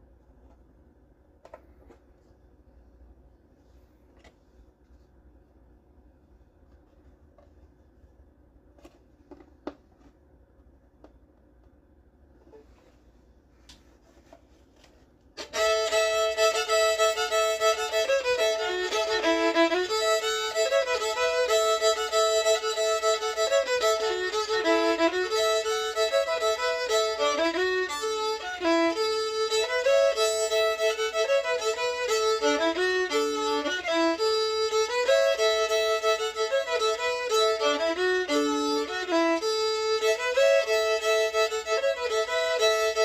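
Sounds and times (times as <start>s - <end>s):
solo fiddle playing: 15.4s - 43.0s.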